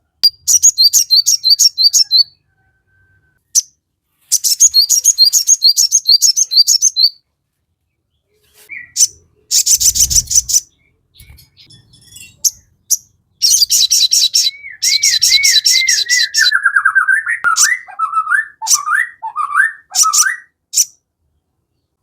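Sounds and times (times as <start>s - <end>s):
bird rattling call: 9.6s - 10.7s
bird whistled notes: 13.4s - 20.9s.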